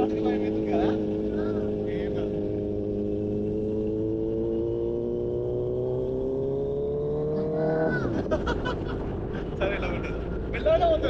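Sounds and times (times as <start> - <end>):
motorcycle engine accelerating: 0.0 - 10.5.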